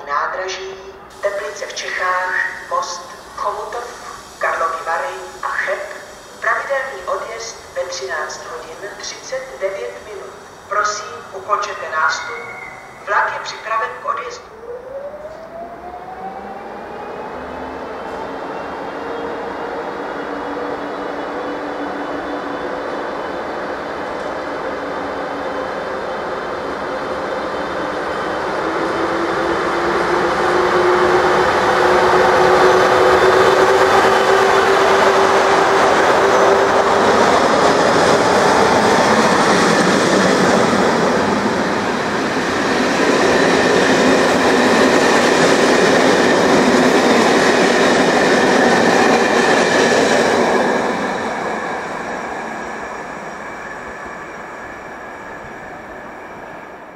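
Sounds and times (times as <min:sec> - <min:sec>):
train whine rising in pitch: 0:01.0 - 0:23.8, 0:24.8 - 0:56.9.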